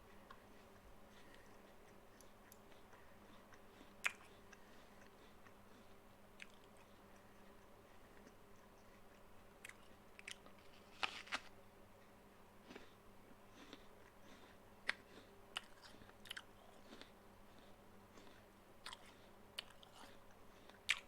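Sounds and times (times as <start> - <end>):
chewing clicks: 1.3 - 10.6
apple crunching: 9.6 - 11.5.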